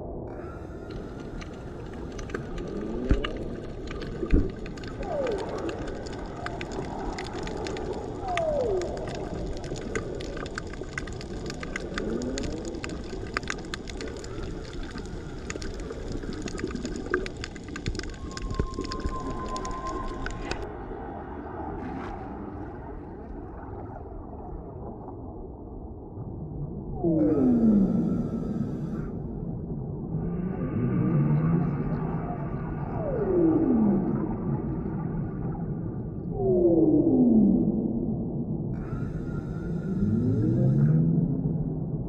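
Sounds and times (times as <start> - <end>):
crackle of fine underwater clicks: 0.3 - 20.7, 27.1 - 29.2, 38.8 - 41.0
sliding underwater calls: 0.4 - 20.7
steady whistle: 18.1 - 20.6.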